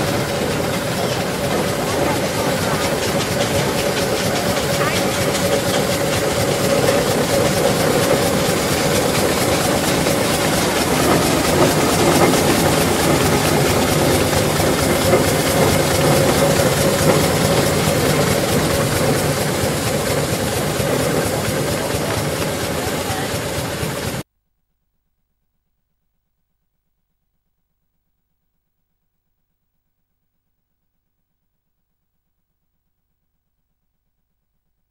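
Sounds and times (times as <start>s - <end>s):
steam engines running: 0.0s - 24.2s.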